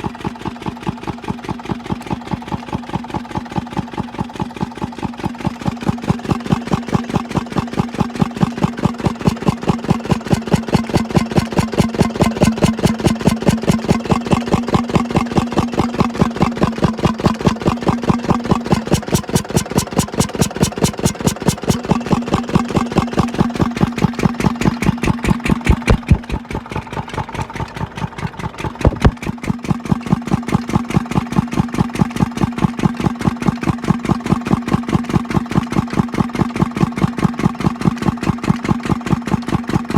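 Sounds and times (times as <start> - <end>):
engine driving water pump: 0.0 - 39.9
sharp knocks: 25.2 - 26.6, 28.8 - 29.2.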